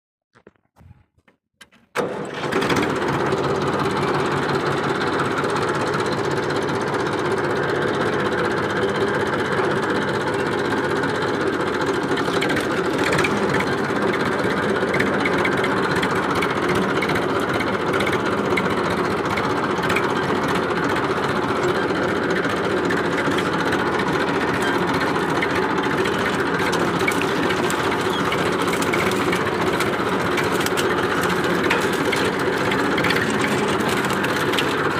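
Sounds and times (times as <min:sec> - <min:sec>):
tractor diesel engine running: 0:02.0 - 0:34.9.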